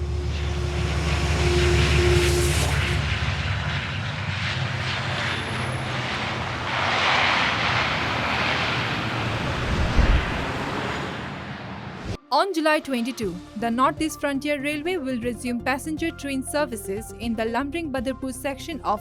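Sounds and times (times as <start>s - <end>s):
rush of noise: 0.0s - 12.2s.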